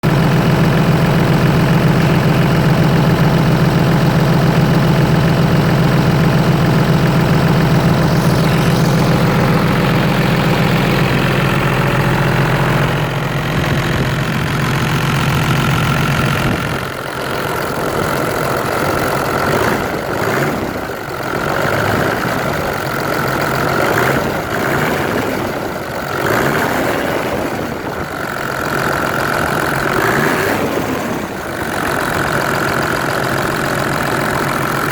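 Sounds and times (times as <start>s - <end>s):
diesel engine idling and revving: 0.0s - 34.9s
turbo whine: 0.1s - 20.6s.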